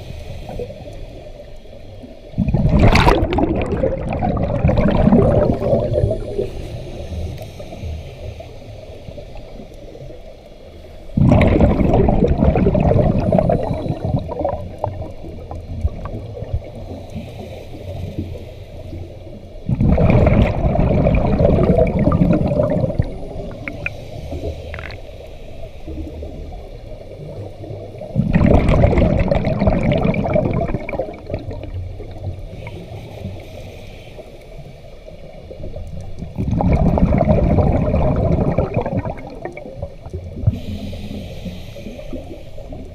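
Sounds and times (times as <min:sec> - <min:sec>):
quiet breathing: 0:00.0 - 0:02.6, 0:04.7 - 0:36.4, 0:37.3 - 0:42.9
diver's breath bubbling underwater: 0:02.4 - 0:06.8, 0:11.2 - 0:16.8, 0:19.7 - 0:25.0, 0:28.0 - 0:32.9, 0:36.2 - 0:42.8.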